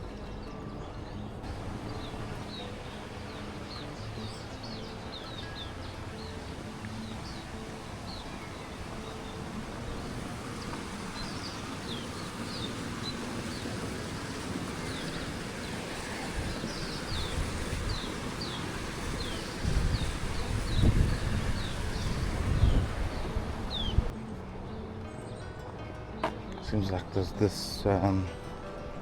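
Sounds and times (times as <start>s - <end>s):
small birds chirping: 0.0s - 24.1s
wind rumble on microphone: 6.5s - 24.2s.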